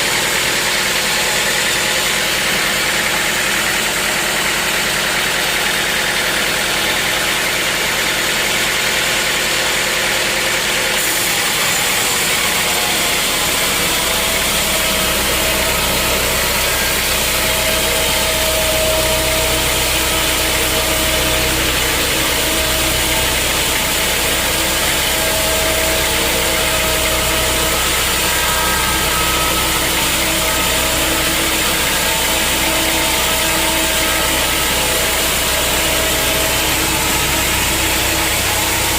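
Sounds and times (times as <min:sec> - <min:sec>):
sawmill machinery drone: 0:00.0 - 0:38.9
deep low hum: 0:12.6 - 0:38.9.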